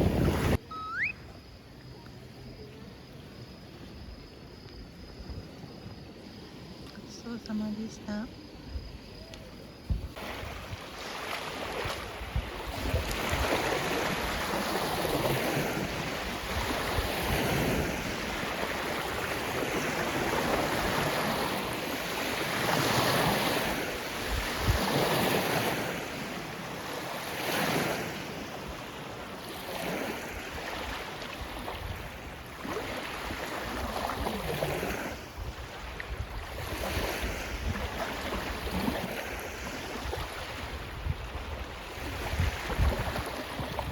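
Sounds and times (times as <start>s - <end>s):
wind rumbling on microphone: 0.0s - 1.5s, 8.3s - 26.5s, 29.8s - 43.9s
waves washing onto shore: 10.1s - 43.9s.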